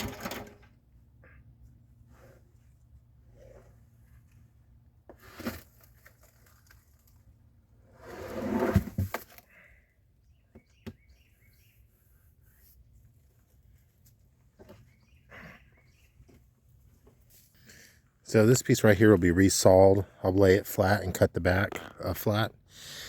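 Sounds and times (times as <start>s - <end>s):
wood slab scraping: 7.9s - 9.4s
faint bird chirps: 10.1s - 12.3s, 14.7s - 16.4s.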